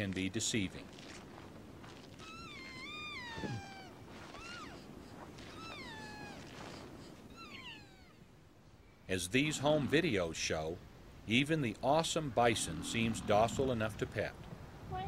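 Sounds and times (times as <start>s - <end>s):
elk mewing calls: 2.2s - 8.3s.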